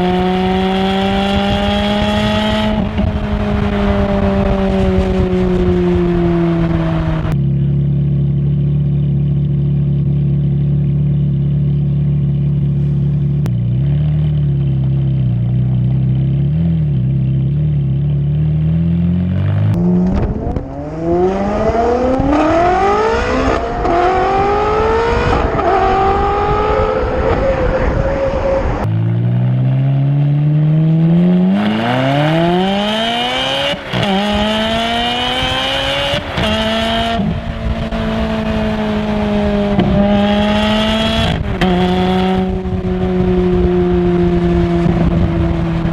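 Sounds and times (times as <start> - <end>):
car engine pulling through gears: 0.0 - 45.9.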